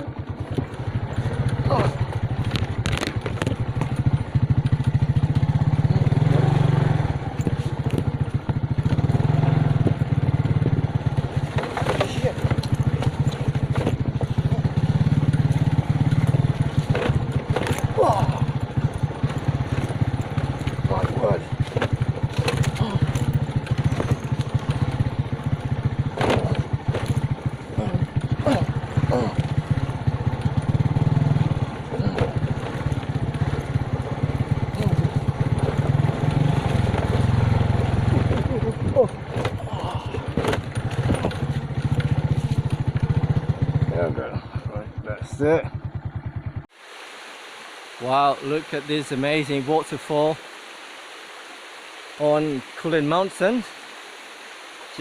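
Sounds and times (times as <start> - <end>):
small motorcycle engine running: 0.0 - 46.8
sharp knocks and rattles: 0.3 - 5.8, 7.3 - 43.9.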